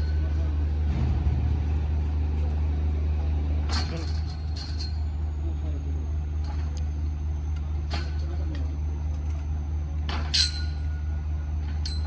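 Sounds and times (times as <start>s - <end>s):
low machine hum: 0.0s - 12.0s
metal clinks: 3.7s - 5.2s, 10.1s - 11.0s, 11.6s - 12.0s.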